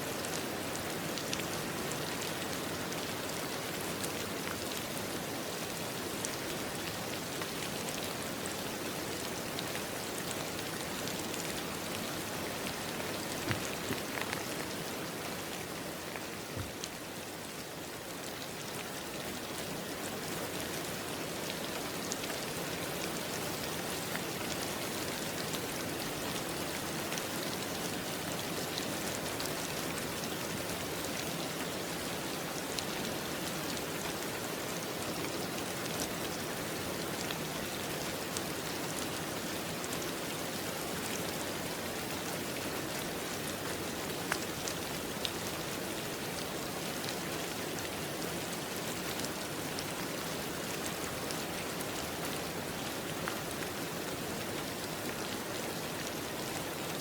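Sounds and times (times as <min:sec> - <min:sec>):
steady rain falling: 0:00.0 - 0:57.0
raindrop ticks: 0:12.7 - 0:14.8.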